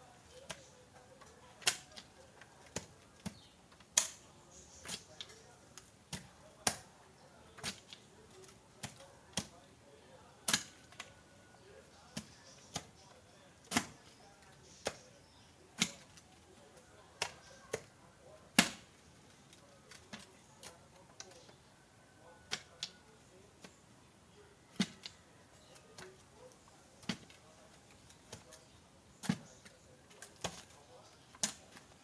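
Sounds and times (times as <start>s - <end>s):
digging tool striking soil: 10.5s - 11.1s, 12.1s - 15.0s, 15.8s - 16.3s, 18.5s - 19.0s, 24.7s - 26.2s, 27.0s - 32.0s.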